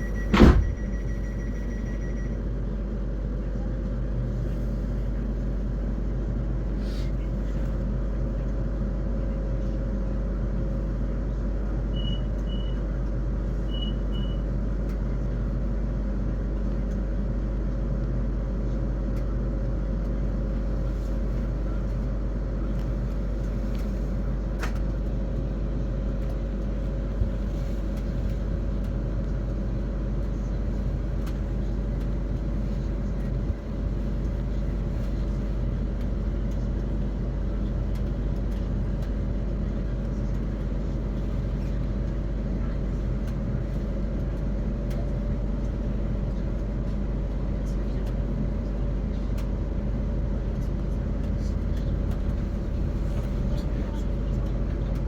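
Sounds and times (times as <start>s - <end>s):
short high beeps: 0.0s - 2.4s
train wheels rumbling on track: 0.0s - 55.0s.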